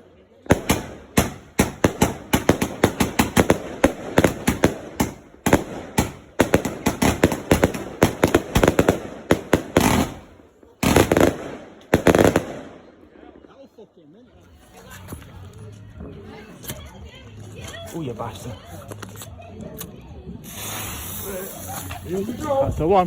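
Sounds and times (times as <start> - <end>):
fireworks banging: 0.5 - 13.4.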